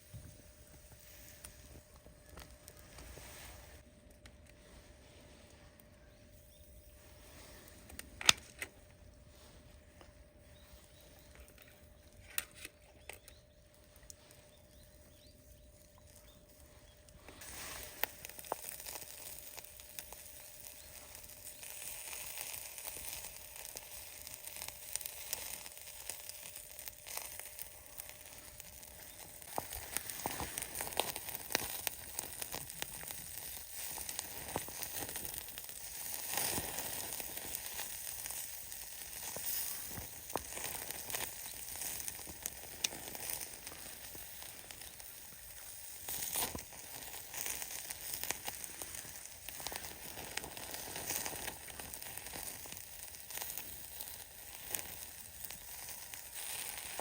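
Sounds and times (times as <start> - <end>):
food sizzling on a grill: 17.2 - 57.0.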